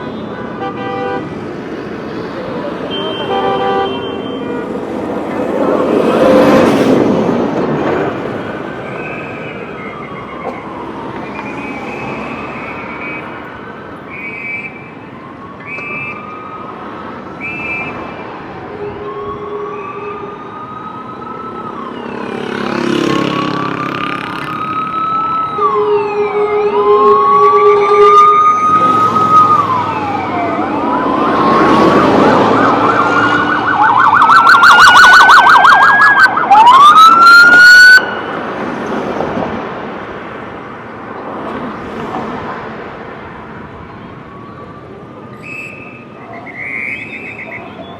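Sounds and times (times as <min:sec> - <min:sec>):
police sirens wailing: 0:00.0 - 0:42.0, 0:42.7 - 0:47.9
fast yelping siren: 0:24.4 - 0:38.4.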